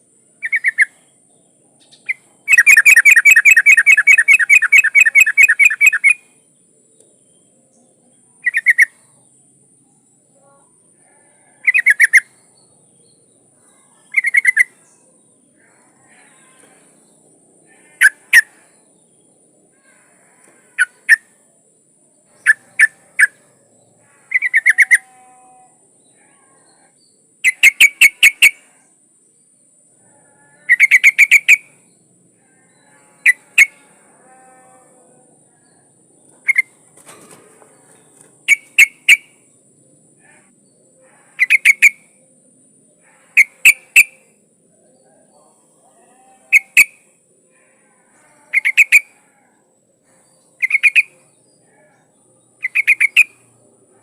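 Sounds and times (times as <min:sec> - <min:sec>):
bulbul calling: 0:00.4 - 0:00.9, 0:01.8 - 0:06.2, 0:11.6 - 0:12.3, 0:14.1 - 0:15.0, 0:24.3 - 0:25.1, 0:27.4 - 0:28.6, 0:30.7 - 0:31.8, 0:36.4 - 0:37.2, 0:38.4 - 0:39.4, 0:41.4 - 0:42.1, 0:43.4 - 0:44.3, 0:46.5 - 0:47.0, 0:48.5 - 0:49.1, 0:50.6 - 0:51.2, 0:52.6 - 0:53.5.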